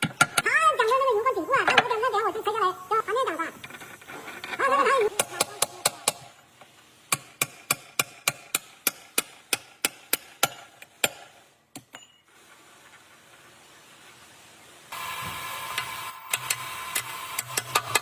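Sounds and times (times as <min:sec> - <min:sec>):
hammer tapping: 0:05.1 - 0:06.3, 0:07.1 - 0:12.2.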